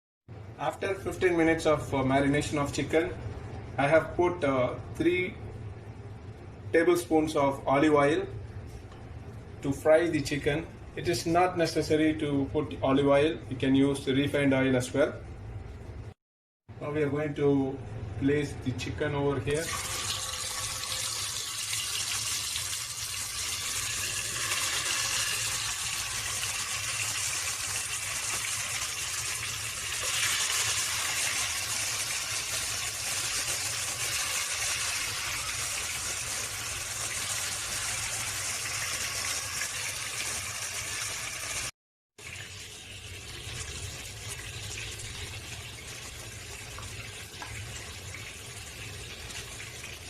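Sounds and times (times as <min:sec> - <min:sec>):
chicken sizzling in oil: 0:19.6 - 0:50.0.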